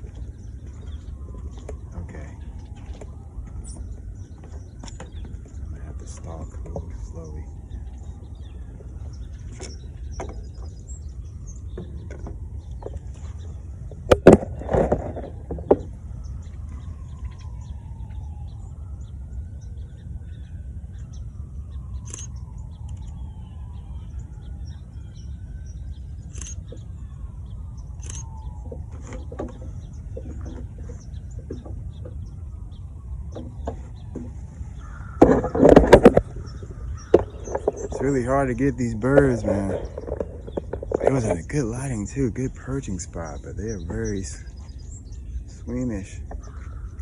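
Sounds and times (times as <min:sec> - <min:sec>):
steady low rumble: 0:00.0 - 0:47.0
faint falling bird calls: 0:11.6 - 0:18.2, 0:26.2 - 0:47.0
loud knocks and rustling: 0:14.0 - 0:15.9, 0:28.7 - 0:32.2, 0:33.3 - 0:38.1.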